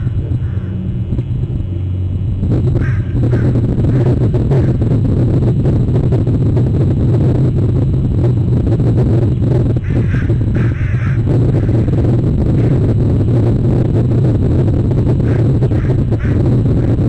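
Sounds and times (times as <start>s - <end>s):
low rumble: 0.0s - 17.0s
harsh bird calls: 2.8s - 4.8s, 9.8s - 12.0s, 15.2s - 16.4s.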